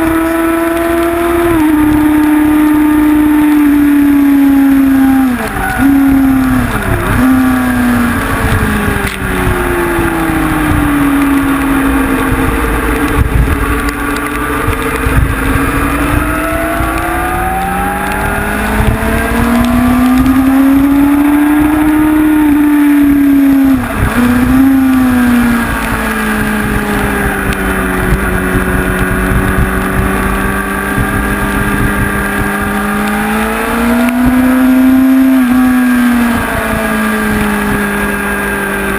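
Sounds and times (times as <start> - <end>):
gear shift pitch drops: 0.0 - 38.9
motorcycle engine revving hard: 0.0 - 38.9.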